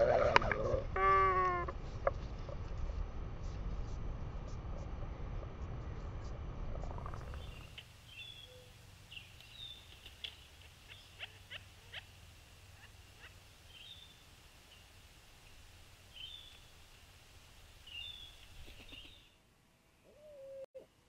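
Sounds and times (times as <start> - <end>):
low steady hum: 0.0 - 21.0
short high bird calls: 17.9 - 19.4.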